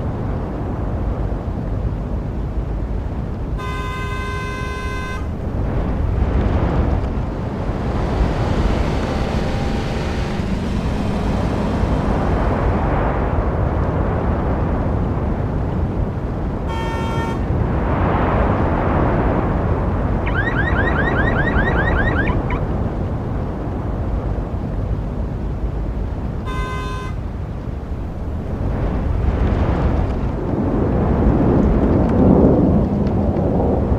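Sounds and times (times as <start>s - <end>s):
road traffic: 0.0s - 31.0s
car alarm chirps: 3.6s - 5.3s, 20.3s - 22.6s
car horn honks: 3.6s - 5.4s, 16.7s - 17.4s, 26.4s - 27.2s.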